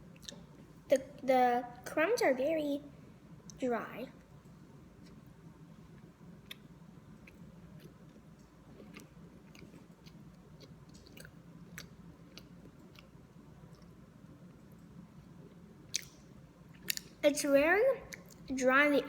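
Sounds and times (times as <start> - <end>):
person chewing: 0.2 - 0.4, 5.9 - 14.0, 15.5 - 17.2.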